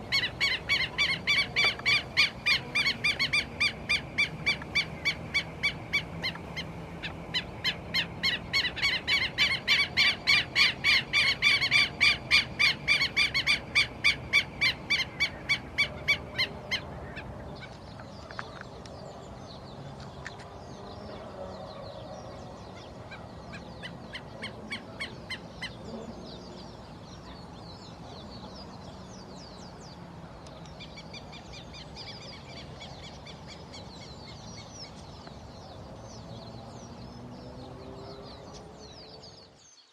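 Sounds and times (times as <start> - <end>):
bird repeated loud calls: 0.0 - 18.6.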